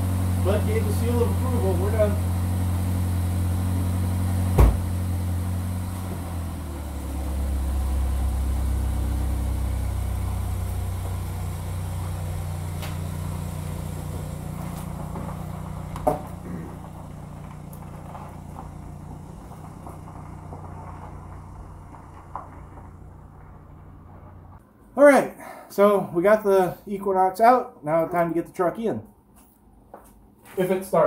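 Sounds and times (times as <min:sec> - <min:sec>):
car engine running: 0:00.0 - 0:24.6
car door thumping shut: 0:04.4 - 0:05.0
sharp knock: 0:04.5 - 0:04.9.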